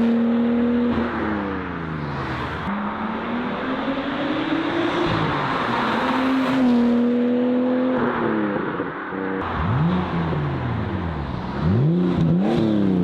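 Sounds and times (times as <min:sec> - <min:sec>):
car engine accelerating: 0:09.4 - 0:13.0.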